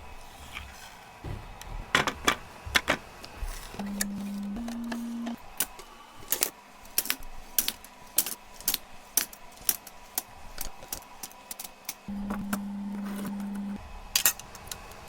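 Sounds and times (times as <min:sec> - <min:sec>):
plastic containers clicking and clinking: 0:00.4 - 0:05.3.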